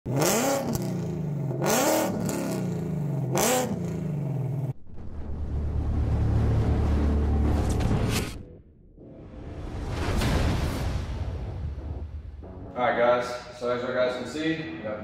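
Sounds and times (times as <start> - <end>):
car engine revving: 0.1 - 7.9.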